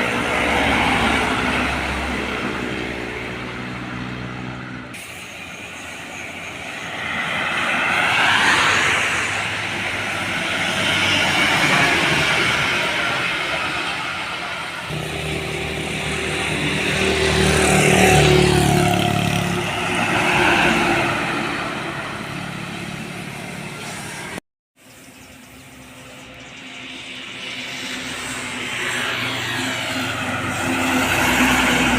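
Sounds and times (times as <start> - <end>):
vehicle approaching: 14.8 - 24.4, 25.1 - 31.9.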